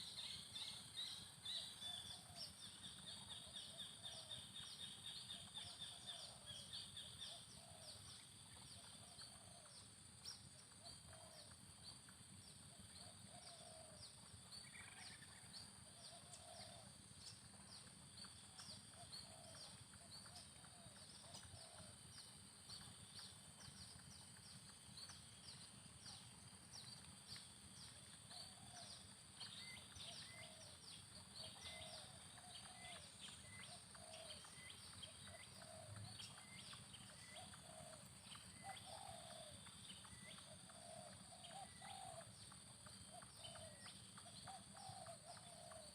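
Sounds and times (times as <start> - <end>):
dove cooing: 5.4 - 6.7, 7.3 - 8.0, 8.8 - 9.8, 13.0 - 14.1, 15.8 - 16.9, 18.6 - 22.0, 28.3 - 30.8, 31.4 - 42.4, 43.1 - 45.9.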